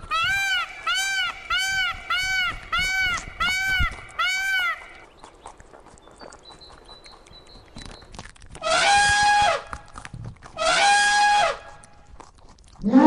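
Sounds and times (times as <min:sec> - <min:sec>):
elephant trumpeting: 0:10.6 - 0:11.7.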